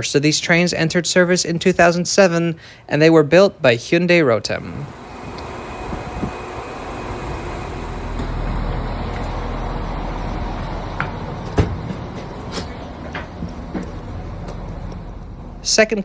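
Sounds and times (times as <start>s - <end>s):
train diesel engines idling: 4.5s - 16.0s.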